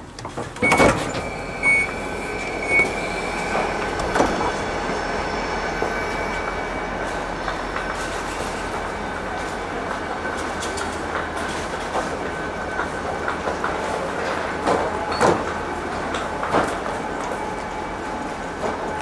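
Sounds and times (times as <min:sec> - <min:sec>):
train rumble: 0:00.0 - 0:19.0
high wheel squeal: 0:00.7 - 0:09.9
steady whine: 0:00.8 - 0:19.0.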